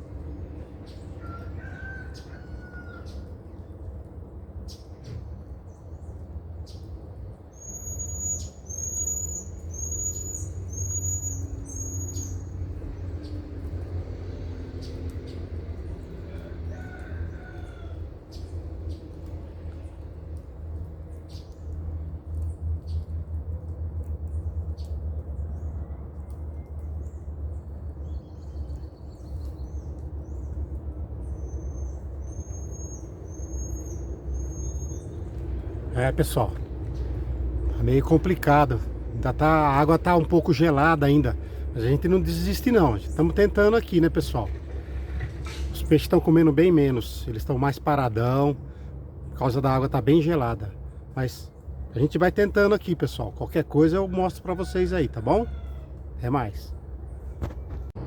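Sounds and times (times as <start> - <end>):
bird whistling call: 7.6 - 12.4
steady low rumble: 17.9 - 55.2, 55.8 - 58.0.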